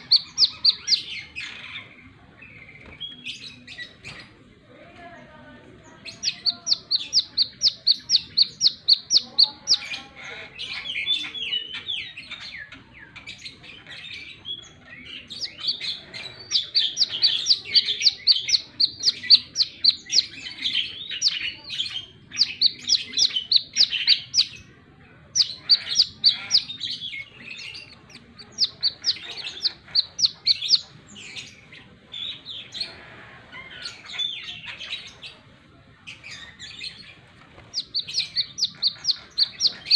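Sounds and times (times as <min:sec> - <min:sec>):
bird lower twittering: 0:00.0 - 0:01.6, 0:06.0 - 0:10.0, 0:15.2 - 0:24.6, 0:25.4 - 0:31.7, 0:37.6 - 0:39.9
bird high sharp chirps: 0:00.0 - 0:01.9, 0:06.0 - 0:10.0, 0:15.2 - 0:24.7, 0:25.4 - 0:31.7, 0:36.2 - 0:39.9.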